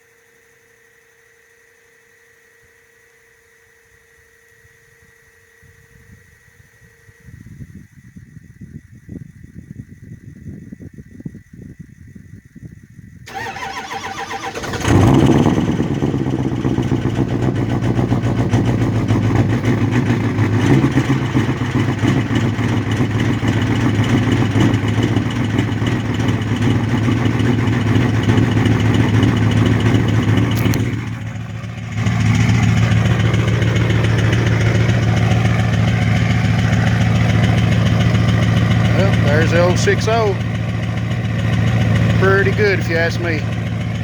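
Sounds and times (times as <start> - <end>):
diesel engine cranking: 13.3 - 44.0
diesel engine idling: 13.3 - 44.0.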